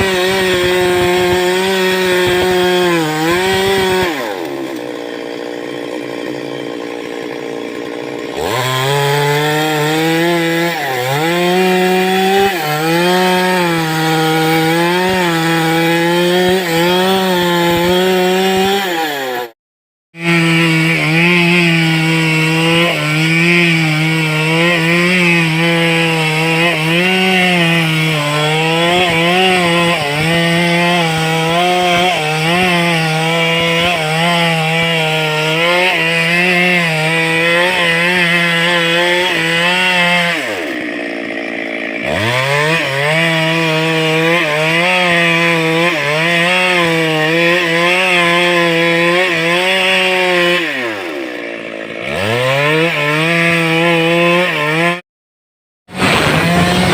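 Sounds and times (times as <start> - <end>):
chainsaw cutting wood: 0.0 - 19.6, 20.2 - 55.0, 55.9 - 56.9.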